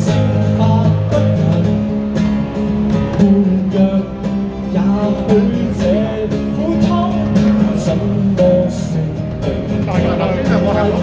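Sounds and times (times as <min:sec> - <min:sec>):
lead guitar with bending notes: 0:00.0 - 0:11.0
sustained guitar chords: 0:00.0 - 0:11.0.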